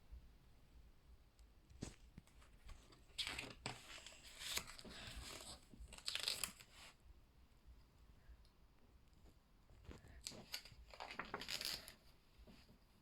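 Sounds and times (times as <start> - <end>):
book pages rustling: 1.7 - 7.0, 9.8 - 12.8.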